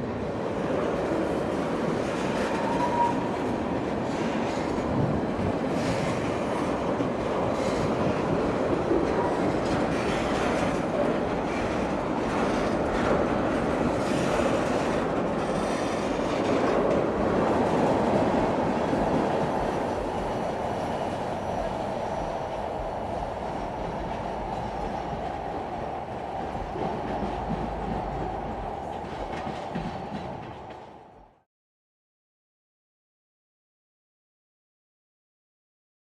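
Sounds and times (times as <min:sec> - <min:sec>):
train wheels rumbling on rails: 0:00.0 - 0:31.4
clicking over rail joints: 0:08.9 - 0:31.2.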